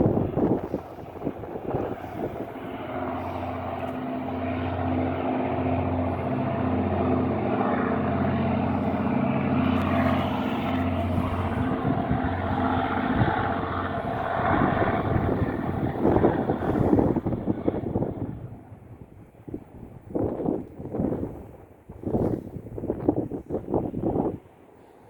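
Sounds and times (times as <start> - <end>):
diesel locomotive engine drone: 0.0 - 20.1.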